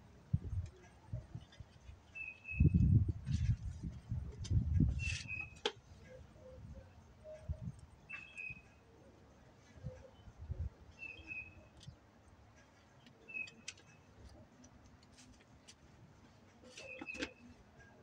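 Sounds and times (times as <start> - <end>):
quiet outdoor ambience: 0.0 - 18.0
bird chirping: 0.8 - 3.0, 4.9 - 12.0, 12.6 - 14.6, 16.6 - 18.0
hands clicking among plants: 4.3 - 5.8, 13.0 - 17.5.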